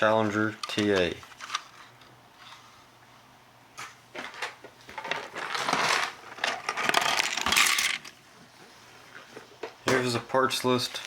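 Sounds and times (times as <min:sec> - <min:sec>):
plastic parts crinkling and rattling: 0:00.5 - 0:02.7, 0:04.1 - 0:08.2
plastic parts clicking: 0:04.3 - 0:08.2.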